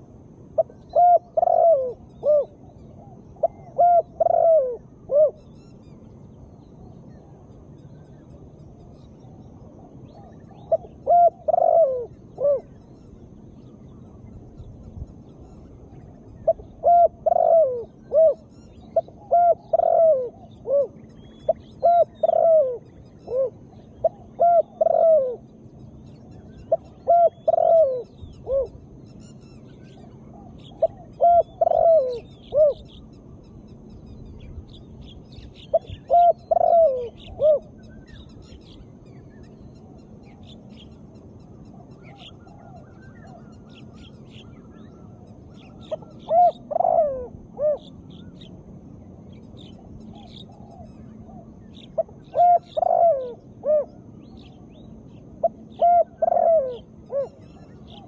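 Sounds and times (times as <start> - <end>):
dove cooing: 0.0 - 5.4, 9.1 - 12.8, 15.8 - 25.6, 26.6 - 29.0, 29.9 - 33.1, 35.3 - 38.8, 41.7 - 48.5, 49.3 - 58.0
small birds chirping: 0.6 - 58.0.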